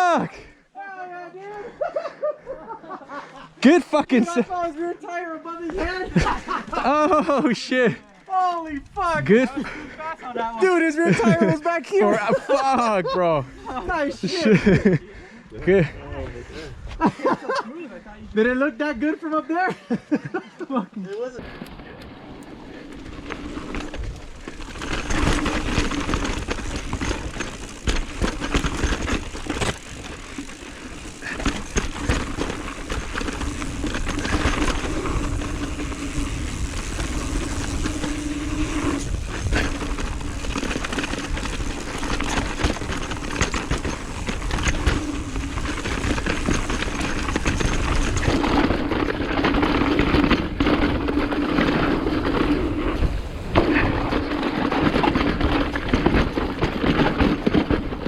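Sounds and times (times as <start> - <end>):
bike tyre noise: 5.6 - 11.6, 21.4 - 58.0
freehub ticking buzz: 22.4 - 50.6
bike clattering knocks: 23.2 - 51.8
wind rush on microphone: 31.1 - 58.0.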